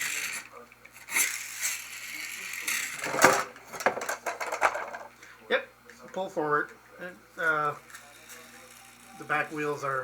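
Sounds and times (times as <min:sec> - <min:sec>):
toy pull-back motor whirring: 0:00.0 - 0:03.0, 0:07.8 - 0:10.0
plastic knocks: 0:03.0 - 0:05.1.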